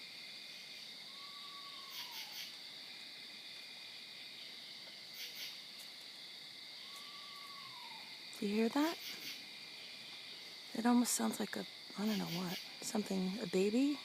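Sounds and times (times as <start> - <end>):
insect chorus high trill: 0.0 - 14.0
faint falling animal call: 1.1 - 2.5, 6.8 - 8.1.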